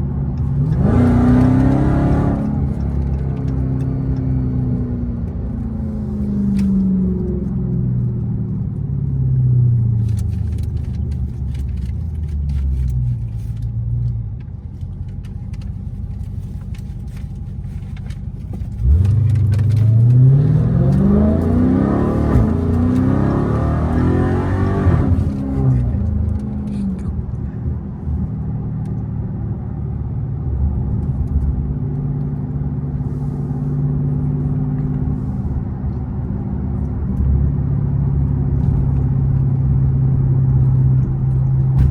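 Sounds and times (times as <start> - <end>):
car engine revving: 0.1 - 7.3, 18.7 - 27.4.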